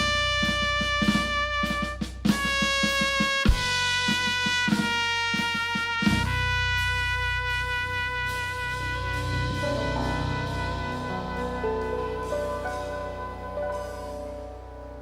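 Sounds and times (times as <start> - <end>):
brass holding long notes: 0.0 - 15.0
trumpet: 0.0 - 15.0
steady bass line: 6.0 - 15.0
drum kit hits: 8.3 - 15.0.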